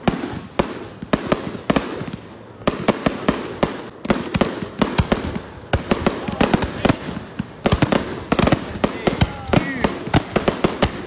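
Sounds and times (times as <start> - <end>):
fireworks banging: 0.0 - 11.0.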